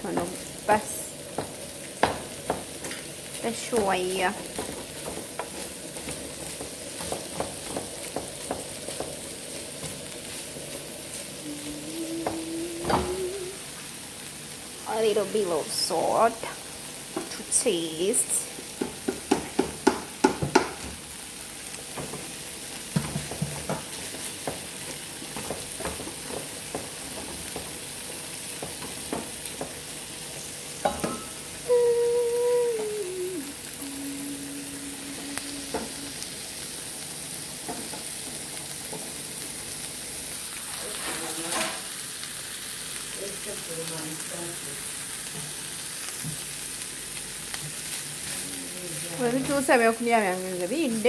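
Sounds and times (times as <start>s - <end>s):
food sizzling in frying pan: 0.0s - 51.0s
spatula scraping a pan: 40.8s - 41.9s.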